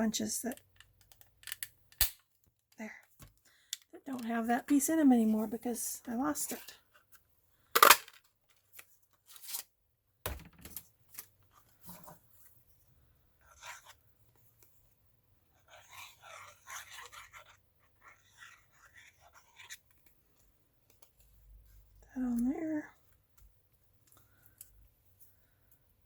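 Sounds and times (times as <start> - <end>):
paper rustling and scraping: 9.2 - 9.7
faint clicks and taps: 23.1 - 24.8.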